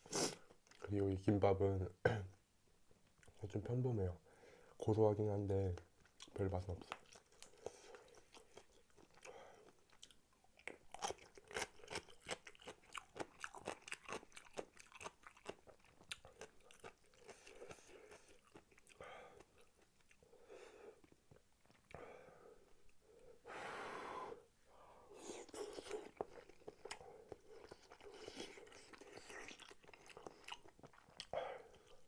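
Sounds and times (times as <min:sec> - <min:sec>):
close chewing: 0:05.8 - 0:20.3, 0:25.2 - 0:32.0.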